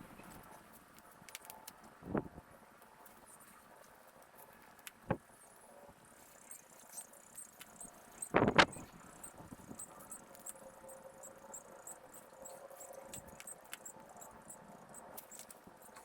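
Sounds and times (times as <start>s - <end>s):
faint scattered clicks: 0.2s - 2.0s, 2.8s - 5.1s, 6.3s - 16.0s
faint high chirping: 6.2s - 16.0s.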